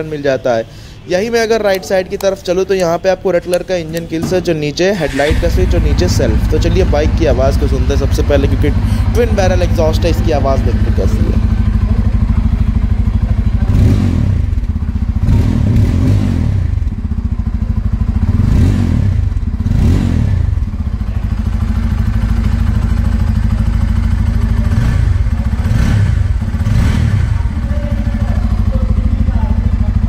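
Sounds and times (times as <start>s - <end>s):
motorcycle engine idling: 0.7s - 30.0s.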